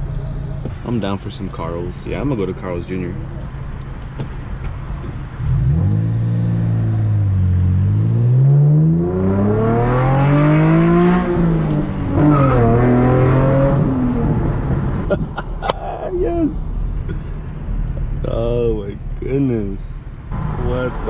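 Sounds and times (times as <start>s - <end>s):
car engine accelerating hard: 4.1s - 15.1s.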